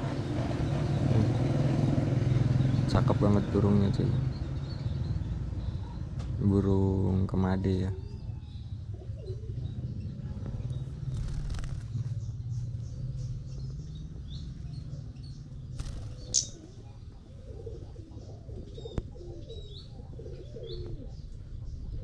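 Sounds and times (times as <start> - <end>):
birds chirping: 0.0 - 22.0
dove cooing: 7.9 - 11.9, 15.8 - 22.0.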